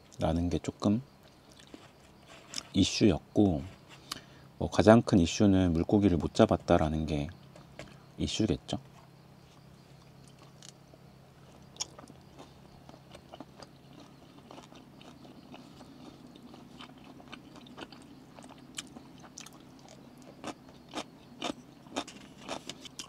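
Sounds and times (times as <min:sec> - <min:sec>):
person chewing: 0:11.5 - 0:23.0.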